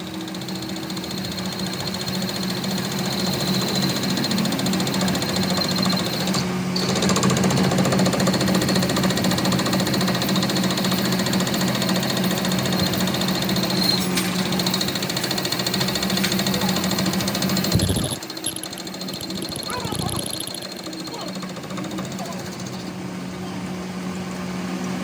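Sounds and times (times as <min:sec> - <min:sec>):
workshop machine rattling and whining: 0:00.0 - 0:25.0.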